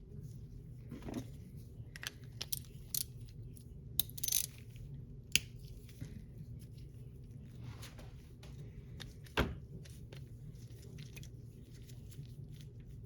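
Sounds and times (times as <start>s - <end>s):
small metal parts clicking: 4.0s - 4.6s.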